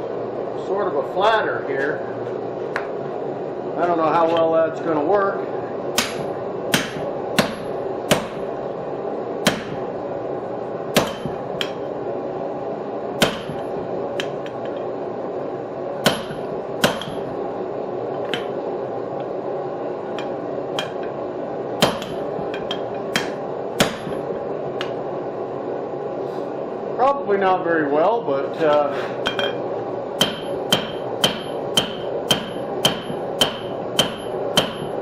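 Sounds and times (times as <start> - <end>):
steady background hum: 0.0 - 35.0
hammer striking steel on anvil: 6.0 - 8.5, 9.4 - 9.8, 11.0 - 11.8, 13.2 - 14.4, 16.0 - 17.3, 20.2 - 21.1, 21.8 - 24.2, 30.2 - 35.0.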